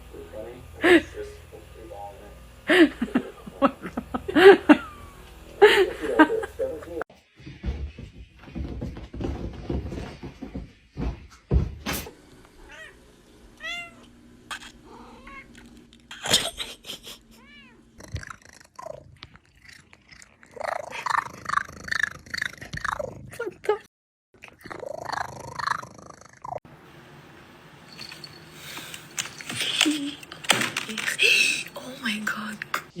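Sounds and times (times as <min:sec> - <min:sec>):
knocks and thumps: 0:07.4 - 0:12.1
cats meowing: 0:12.6 - 0:13.0, 0:13.6 - 0:16.1, 0:17.4 - 0:18.4.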